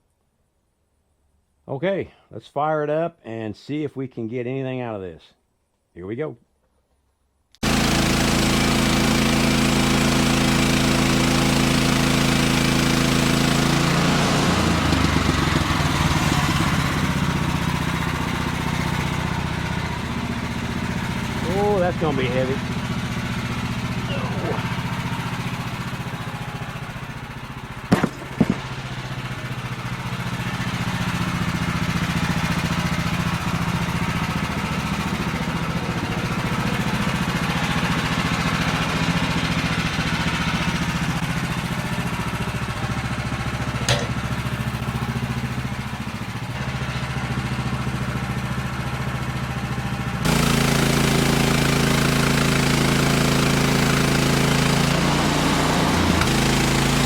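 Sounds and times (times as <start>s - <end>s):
sawmill engine running: 7.6s - 57.0s
sharp knocks: 27.9s - 28.8s.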